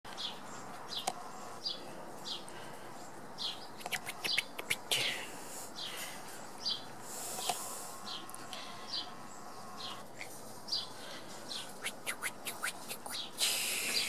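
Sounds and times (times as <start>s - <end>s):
small bird chirping: 3.4s - 14.0s
sharp clicks: 3.8s - 4.9s.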